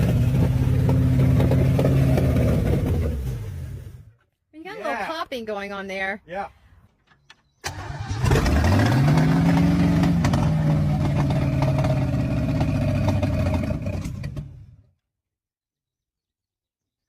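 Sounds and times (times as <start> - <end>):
engine popping: 0.0 - 3.4, 7.7 - 14.7
old car engine revving and idling: 0.0 - 4.1, 7.7 - 14.9.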